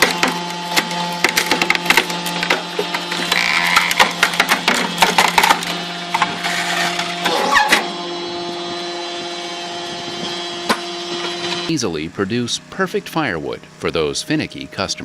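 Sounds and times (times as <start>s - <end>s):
wood cracking and snapping: 0.0s - 6.3s
log splitter engine humming: 0.0s - 15.0s.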